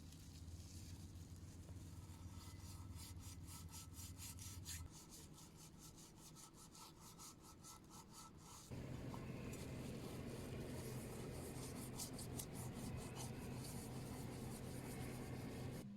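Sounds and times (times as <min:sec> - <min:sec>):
rhythmic scraping on wood: 0:08.7 - 0:15.8.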